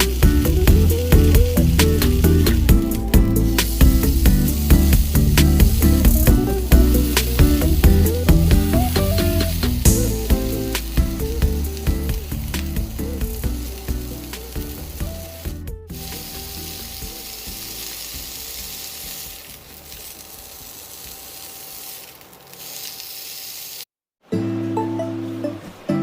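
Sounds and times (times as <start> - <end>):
background music: 0.0 - 20.2, 24.3 - 26.0
food sizzling in a hot pan: 0.0 - 23.9.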